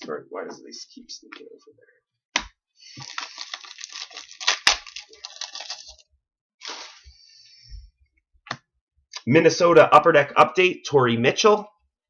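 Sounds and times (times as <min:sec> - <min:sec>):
foil wrapper crinkling: 0:02.8 - 0:06.0, 0:06.6 - 0:07.0.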